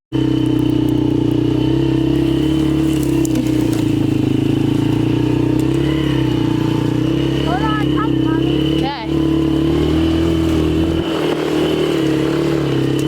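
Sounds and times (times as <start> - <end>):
quad engine running steadily: 0.1 - 13.0.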